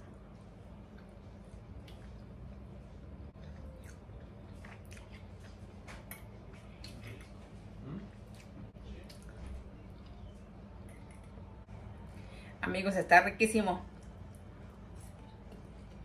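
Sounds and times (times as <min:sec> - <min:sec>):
person chewing food: 0:00.8 - 0:10.3.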